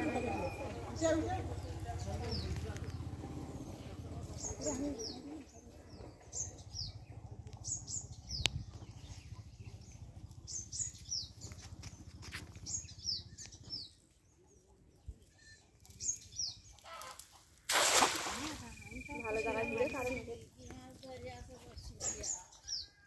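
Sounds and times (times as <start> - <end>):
low steady rumble: 0.0 - 13.6
small birds chirping: 0.0 - 17.3, 18.4 - 23.0.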